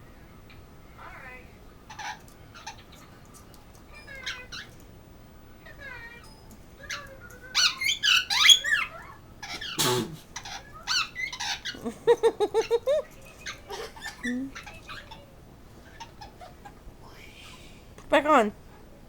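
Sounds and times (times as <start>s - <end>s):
parrot screeching: 1.9s - 2.9s, 4.0s - 4.7s, 6.8s - 9.8s, 10.4s - 11.8s
parrot chirping and whistling: 6.9s - 9.0s.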